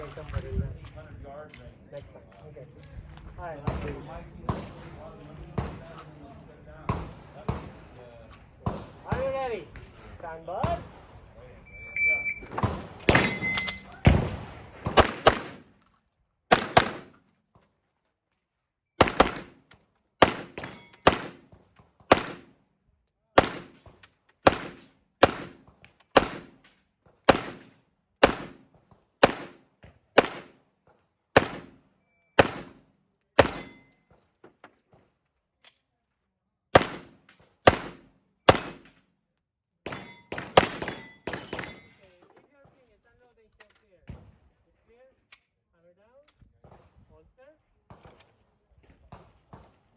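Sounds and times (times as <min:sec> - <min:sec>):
pistol shots: 0:12.5 - 0:15.8, 0:16.5 - 0:17.2, 0:19.0 - 0:19.6, 0:20.2 - 0:21.5, 0:22.1 - 0:22.6, 0:23.4 - 0:26.6, 0:27.3 - 0:28.6, 0:29.2 - 0:29.6, 0:30.2 - 0:30.6, 0:31.4 - 0:31.8, 0:32.4 - 0:32.8, 0:33.4 - 0:33.8, 0:36.7 - 0:39.0, 0:39.9 - 0:41.9.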